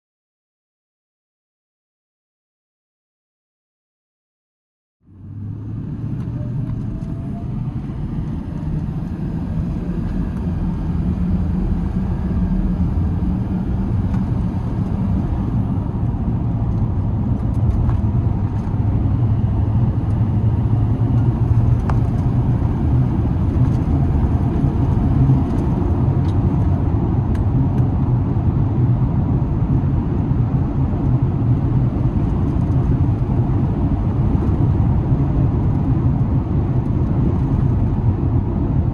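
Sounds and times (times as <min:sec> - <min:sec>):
pickup truck engine running: 0:07.2 - 0:27.0.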